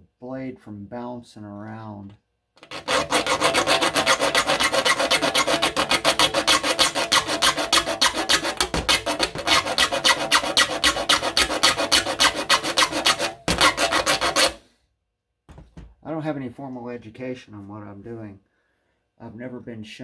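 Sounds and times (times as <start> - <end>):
file rasping on saw teeth: 2.6 - 14.6.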